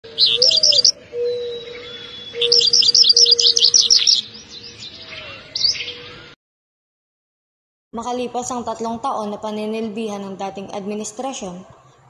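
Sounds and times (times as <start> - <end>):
songbird chirping: 0.0 - 6.4.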